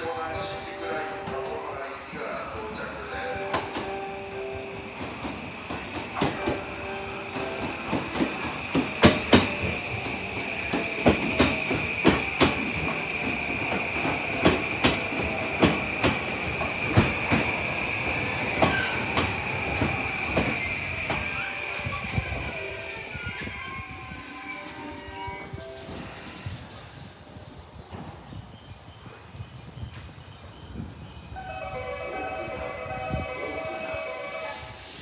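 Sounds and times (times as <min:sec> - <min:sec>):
high-pitched squeal: 0:06.0 - 0:28.0
train wheels clacking over rail joints: 0:07.4 - 0:21.4.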